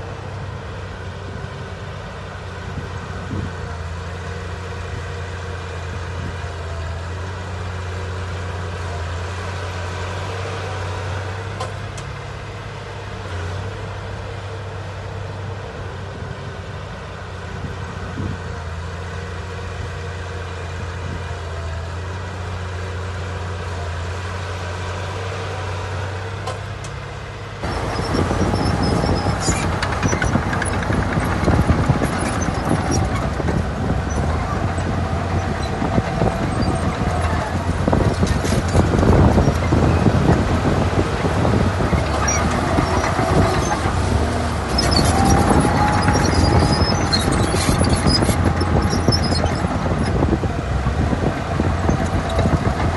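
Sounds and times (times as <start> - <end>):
heavy diesel engine running: 0.0 - 52.9
dense clattering and rattling: 27.6 - 50.4.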